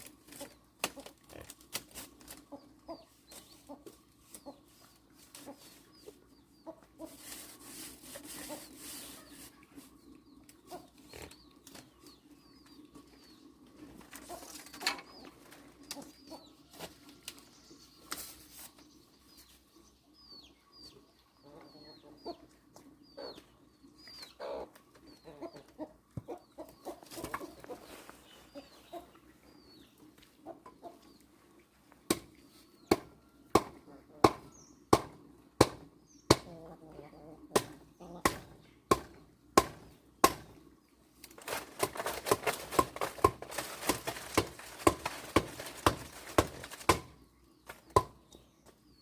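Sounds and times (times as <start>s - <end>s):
chickens clucking: 0.0s - 17.2s, 19.6s - 39.7s.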